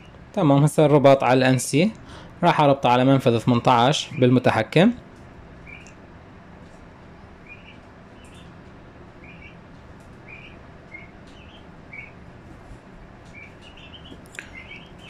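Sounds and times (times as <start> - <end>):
low background hum: 0.0 - 15.0
small bird chirping: 3.5 - 4.4, 5.6 - 6.0, 7.4 - 8.6, 9.2 - 12.2, 13.2 - 15.0.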